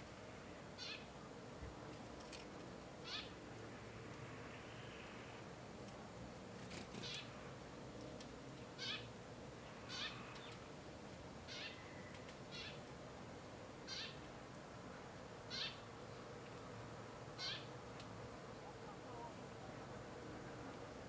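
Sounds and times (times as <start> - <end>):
bird calling with falling notes: 11.5 - 12.8, 17.4 - 17.7.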